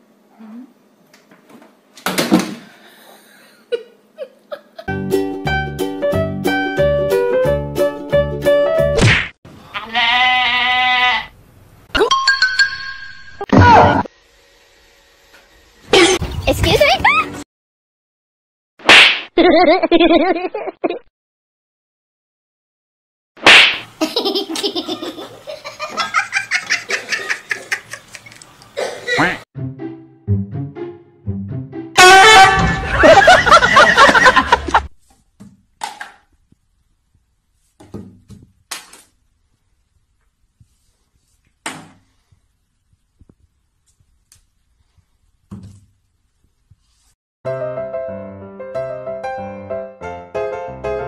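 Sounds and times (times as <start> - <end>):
rapid high-pitched laughter: 24.0 - 29.4
sudden loud hit: 32.1 - 33.2.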